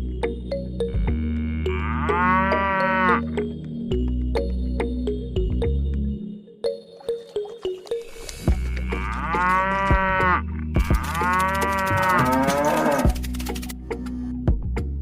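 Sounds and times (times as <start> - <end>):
background music: 0.0 - 15.0
cow mooing: 1.1 - 3.4, 8.6 - 13.2.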